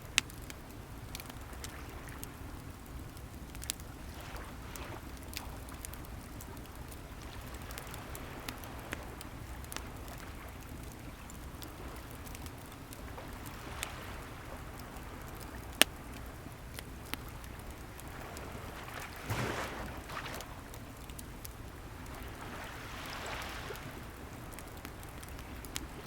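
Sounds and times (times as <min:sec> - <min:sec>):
bonfire crackling and popping: 0:00.0 - 0:26.0
waves washing: 0:18.0 - 0:24.5.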